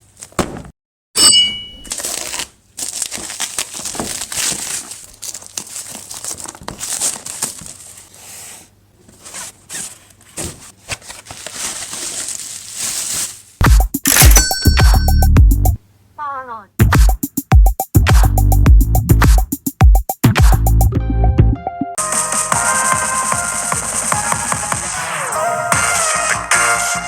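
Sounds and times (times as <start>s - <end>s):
short bright ding: 1.2s - 2.0s, 14.1s - 15.3s
plastic and card crinkling and tearing: 1.9s - 8.2s, 9.1s - 14.3s.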